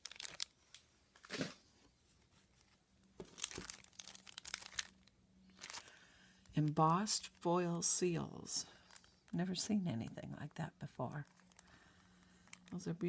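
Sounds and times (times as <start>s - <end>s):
packaging crinkling and rustling: 0.0s - 1.6s, 2.6s - 7.4s, 8.7s - 9.4s, 11.2s - 12.9s.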